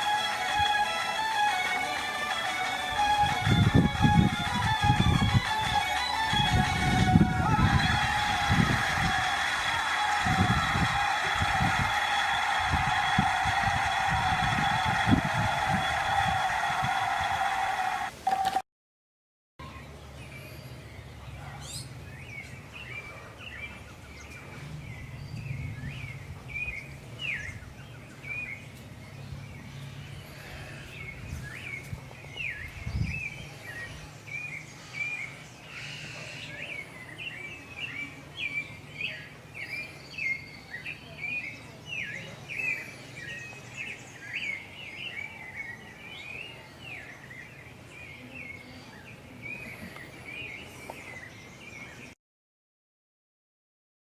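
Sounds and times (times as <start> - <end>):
birds chirping: 0.0 - 18.4, 19.6 - 52.2.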